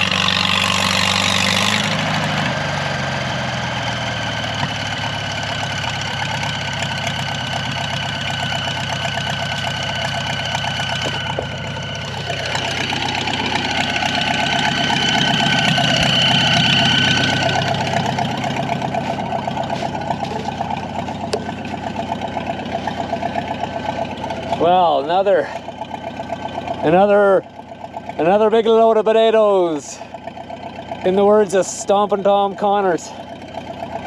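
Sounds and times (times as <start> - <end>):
tractor engine running: 0.0 - 34.0
high whine: 4.0 - 27.4.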